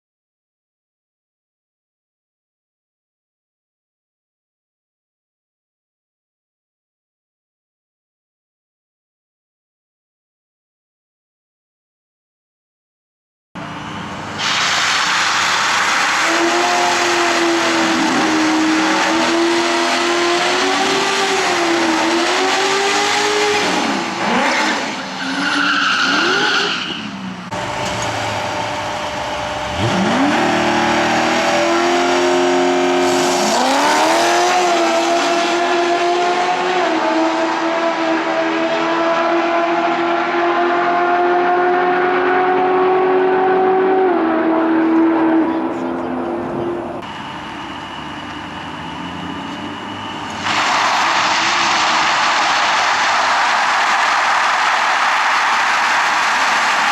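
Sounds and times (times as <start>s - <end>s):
car engine revving high: 14.7s - 26.8s, 27.5s - 56.9s.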